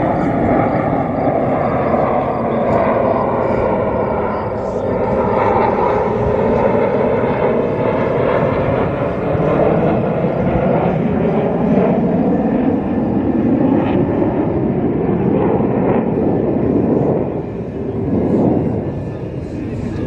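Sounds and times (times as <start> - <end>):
jet noise overhead: 0.0 - 20.0.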